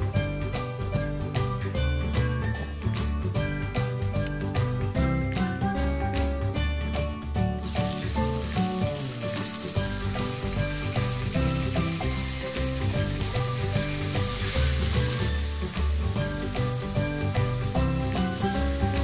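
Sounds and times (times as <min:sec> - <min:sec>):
background music: 0:00.0 - 0:19.0
hot oil sizzling: 0:07.6 - 0:19.0.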